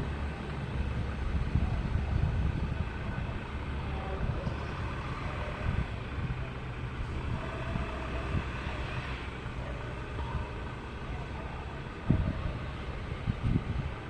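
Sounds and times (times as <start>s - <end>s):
jet aircraft taxiing rumble: 0.0s - 14.0s.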